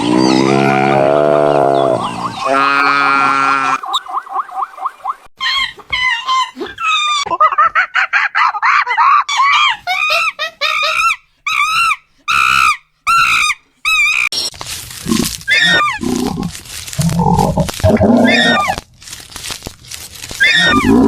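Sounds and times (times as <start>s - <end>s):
animal shrill cries: 10.7s - 14.3s, 15.5s - 16.4s, 17.9s - 18.8s, 20.4s - 21.0s.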